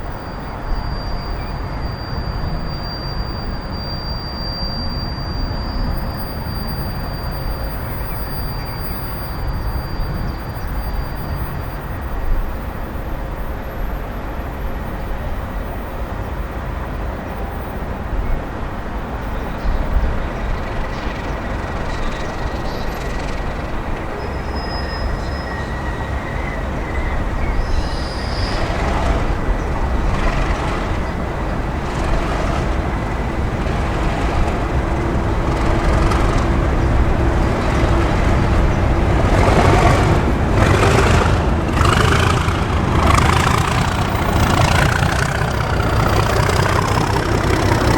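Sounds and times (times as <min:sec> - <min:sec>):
diesel train running on tracks: 0:00.0 - 0:47.9
wheels clicking over rail joints: 0:25.0 - 0:47.9.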